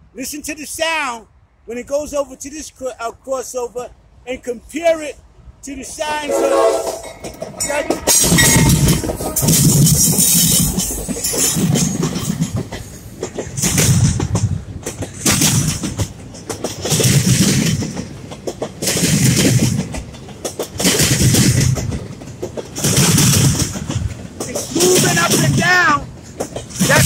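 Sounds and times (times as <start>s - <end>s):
freight train passing: 0.0s - 27.0s
steel wheels clattering over track: 6.3s - 27.0s.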